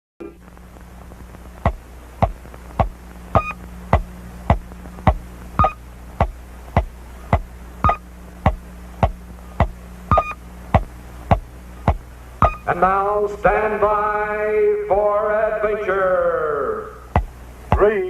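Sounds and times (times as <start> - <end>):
low electronic hum: 0.2 - 18.0
sharp electronic ticks: 1.6 - 12.7, 17.1 - 17.9
short high beep: 5.6 - 5.8, 10.1 - 10.4, 12.4 - 12.7.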